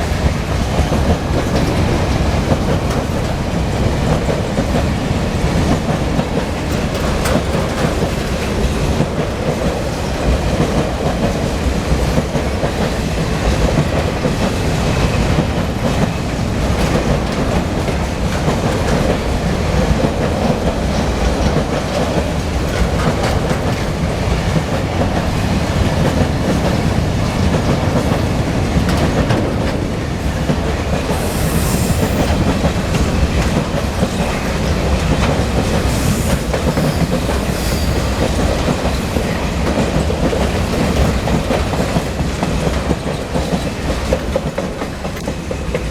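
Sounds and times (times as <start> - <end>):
train wheels clicking over rail joints: 0.0 - 45.9
high squeal: 31.1 - 32.6, 35.9 - 38.4.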